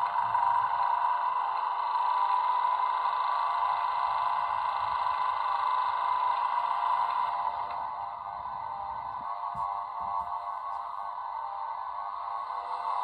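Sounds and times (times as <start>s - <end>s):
electric locomotive hum from small speaker: 0.0s - 13.0s.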